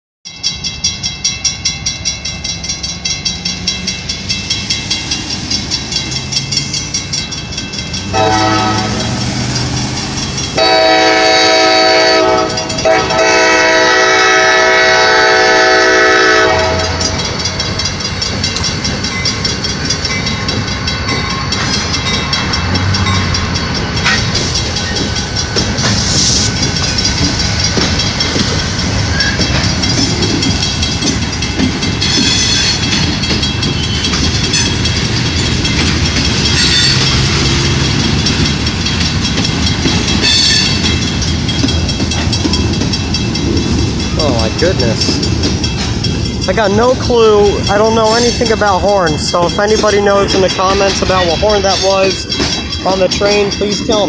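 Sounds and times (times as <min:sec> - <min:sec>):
crossing signal bell ringing: 0:00.3 - 0:54.0
train wheels rumbling on rails: 0:00.3 - 0:54.0
train horn blasts: 0:08.1 - 0:09.4, 0:10.6 - 0:17.2.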